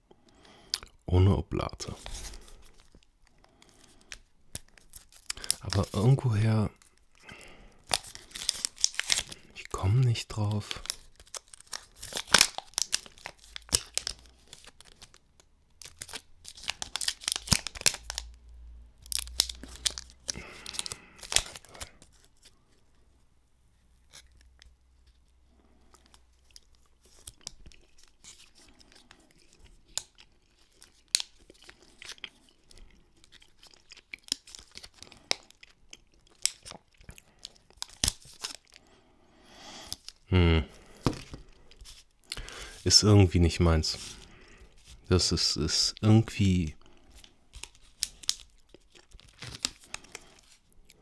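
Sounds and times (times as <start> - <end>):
snack wrapper crinkling and tearing: 0.2 - 22.9, 24.0 - 39.0, 39.7 - 51.0
chewing: 24.1 - 38.8, 48.0 - 51.0.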